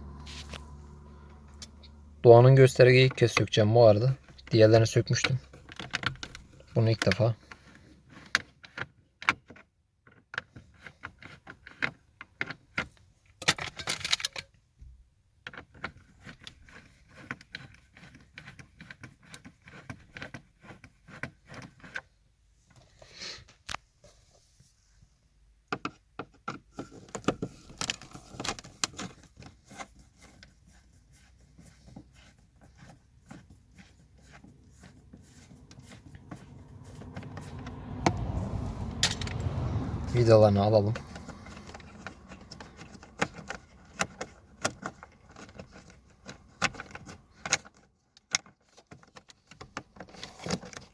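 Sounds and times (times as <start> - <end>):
low rumble: 0.0 - 2.3.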